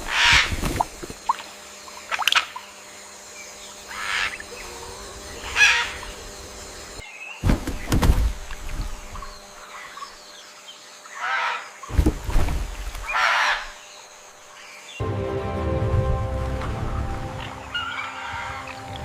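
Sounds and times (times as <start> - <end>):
harsh bird squawks: 0.0 - 0.6, 3.9 - 4.8, 5.4 - 6.2, 11.1 - 11.8, 13.0 - 13.8.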